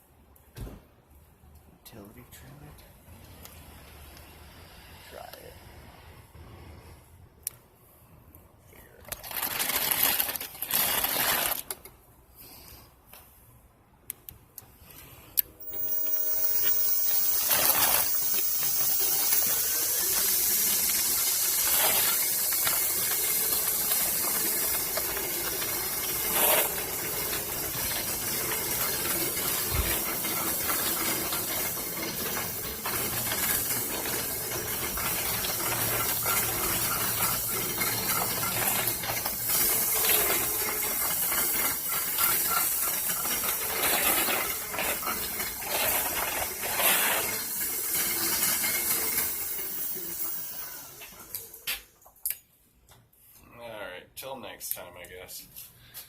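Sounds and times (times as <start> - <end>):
motor drive hissing whir: 15.6 - 51.7.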